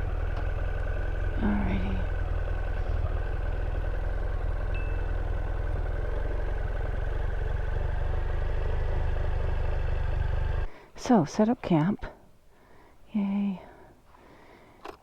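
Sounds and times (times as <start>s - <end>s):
motorcycle engine idling: 0.0s - 10.7s.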